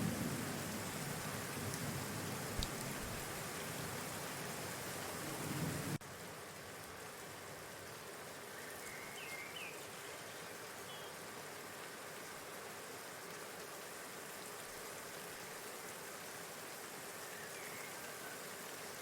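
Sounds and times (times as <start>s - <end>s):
outdoor hiss with low rumble: 0.0s - 19.0s
faint bird chirps: 8.5s - 11.2s, 17.2s - 18.5s.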